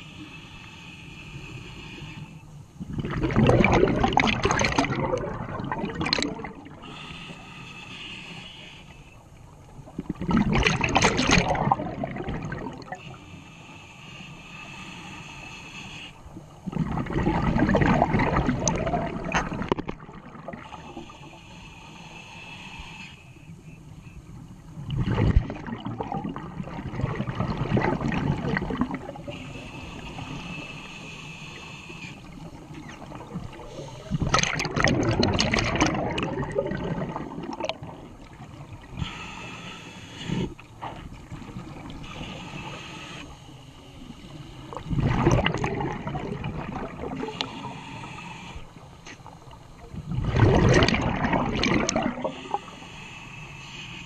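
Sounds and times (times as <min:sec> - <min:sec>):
diver exhaling gurgling bubbles: 0:02.8 - 0:07.0, 0:09.9 - 0:13.1, 0:16.6 - 0:21.2, 0:24.8 - 0:29.6, 0:32.8 - 0:39.1, 0:44.7 - 0:47.8, 0:49.9 - 0:52.8.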